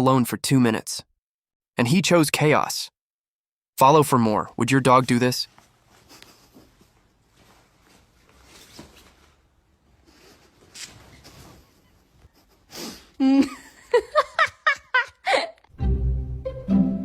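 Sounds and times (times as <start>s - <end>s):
faint breathing: 9.9s - 13.2s
person laughing: 10.1s - 15.7s
low music: 15.7s - 17.0s.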